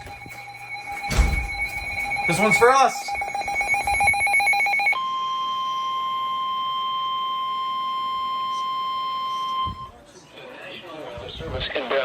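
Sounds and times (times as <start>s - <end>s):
steady warning alarm tone: 0.0s - 9.9s
warbling digital tones: 0.1s - 5.0s.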